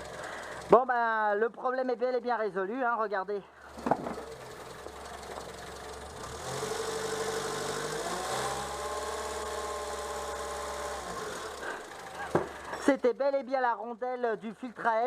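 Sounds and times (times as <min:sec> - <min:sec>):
car engine revving: 0:04.6 - 0:12.8.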